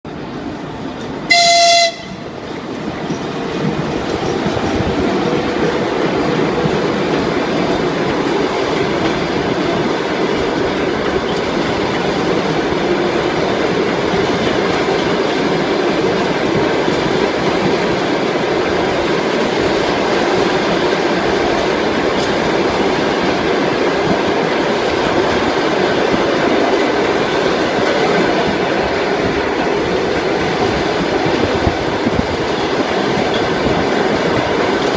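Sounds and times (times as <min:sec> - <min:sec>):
train wheels clickety-clack: 0:00.1 - 0:34.9
locomotive horn blast: 0:01.3 - 0:02.3.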